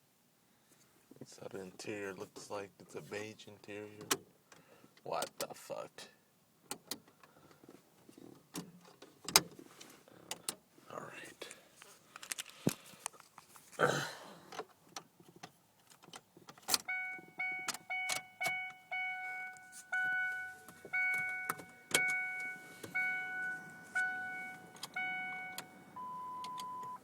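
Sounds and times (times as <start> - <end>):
car warning chime dinging: 16.8 - 27.0.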